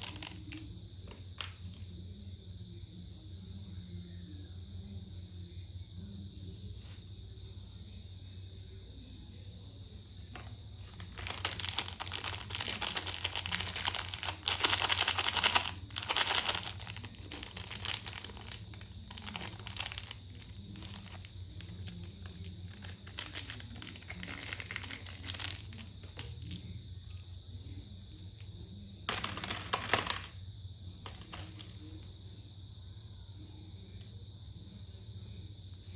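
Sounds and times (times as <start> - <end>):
wrappers crumpled and torn: 0.0 - 0.6, 10.4 - 26.6, 31.1 - 31.8.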